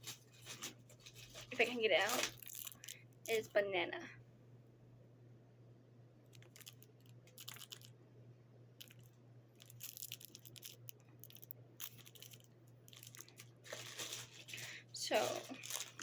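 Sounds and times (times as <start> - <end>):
plastic packaging crinkling: 0.0 - 3.6, 6.3 - 8.0, 8.8 - 16.0
steady low hum: 0.0 - 16.0.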